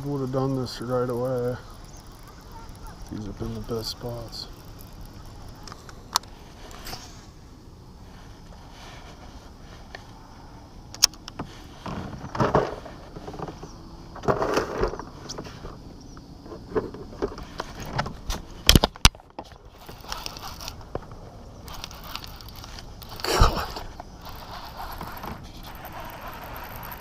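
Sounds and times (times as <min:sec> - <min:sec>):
fishing gear scraping and knocking: 0:11.3 - 0:15.8, 0:16.5 - 0:27.0.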